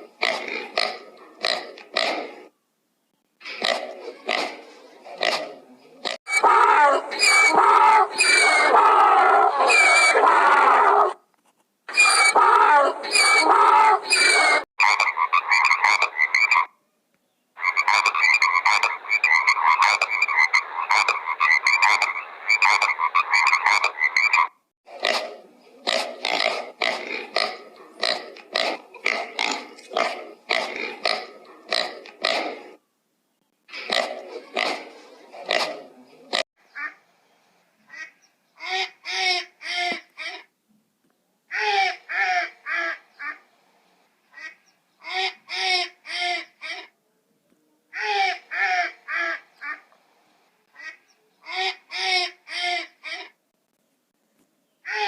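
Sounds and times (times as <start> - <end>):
chattering croaking animal calls: 3.4 - 8.8, 11.9 - 16.7, 17.6 - 32.8, 33.7 - 37.0.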